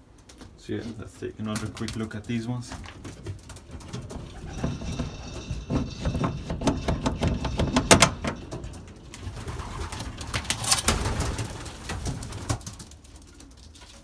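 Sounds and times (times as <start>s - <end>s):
sharp clicks and rustles: 1.4s - 14.0s
pigeons cooing: 3.1s - 12.6s.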